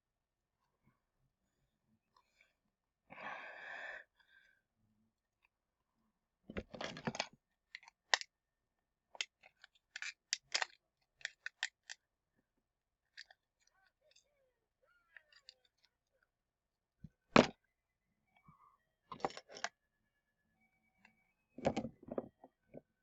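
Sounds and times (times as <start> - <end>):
rustling and handling noise: 6.5 - 8.2, 9.2 - 12.0, 19.1 - 19.7
small parts clicking and snapping: 6.6 - 8.2, 9.2 - 12.0, 13.1 - 14.2, 19.2 - 19.7.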